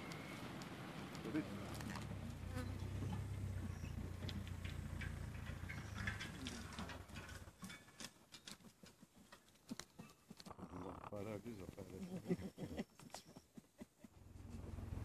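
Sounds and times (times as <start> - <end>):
low engine hum: 0.0 - 7.6, 14.1 - 15.0.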